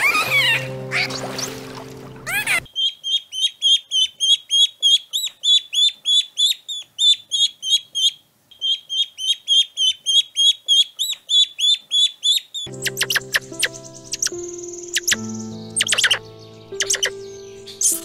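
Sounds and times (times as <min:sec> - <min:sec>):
music: 0:00.0 - 0:02.7, 0:12.7 - 0:18.0
small bird chirping: 0:02.3 - 0:18.0.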